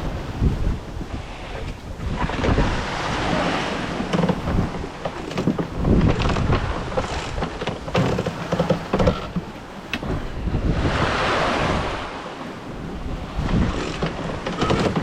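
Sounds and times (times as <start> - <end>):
water rushing: 0.0 - 15.0
wind buffeting microphone: 0.0 - 15.0
knocks: 4.1 - 10.2.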